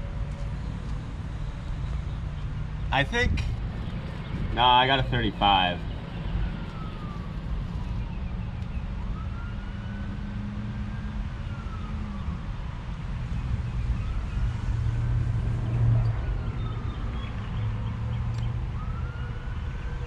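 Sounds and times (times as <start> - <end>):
low engine drone: 3.0 - 8.8
siren wailing: 4.0 - 12.5.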